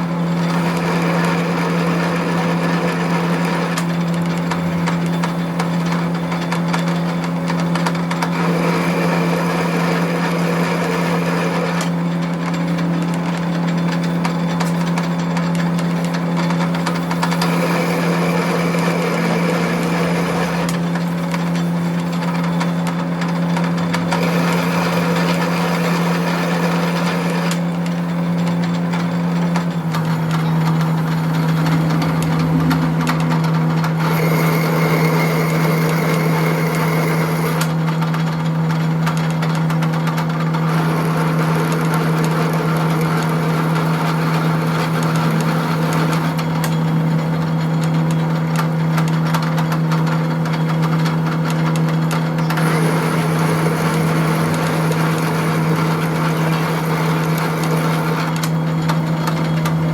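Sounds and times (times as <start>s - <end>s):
machine humming: 0.0s - 59.9s
rough changing noise: 30.3s - 34.0s.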